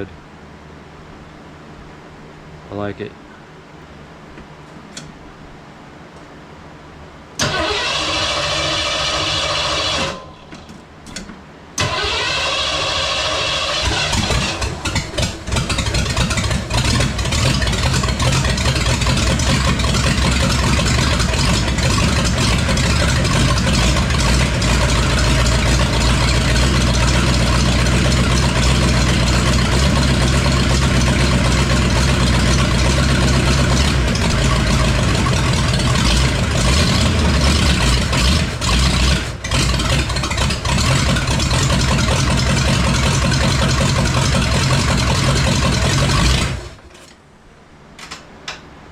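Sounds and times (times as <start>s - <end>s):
car engine idling: 7.4s - 46.9s.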